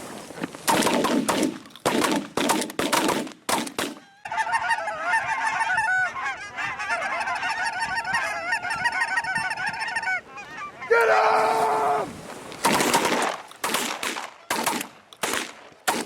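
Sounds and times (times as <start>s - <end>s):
flock of geese honking: 4.0s - 12.1s.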